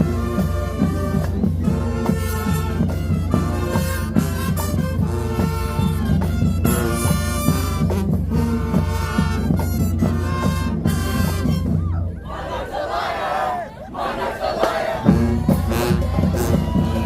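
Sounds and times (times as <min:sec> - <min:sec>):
marching band playing: 0:00.0 - 0:17.0
rhythmic drum pulse: 0:14.5 - 0:17.0.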